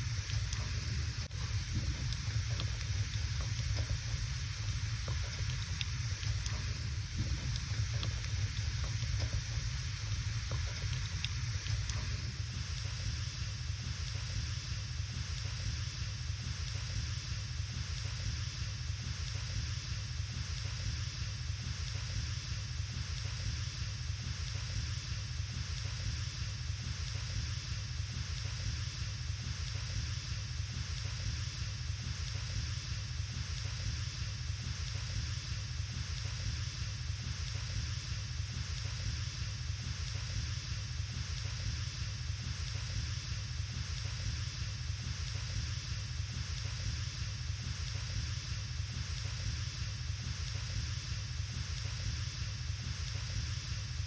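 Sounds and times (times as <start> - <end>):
wood fire hissing: 0.0 - 24.0.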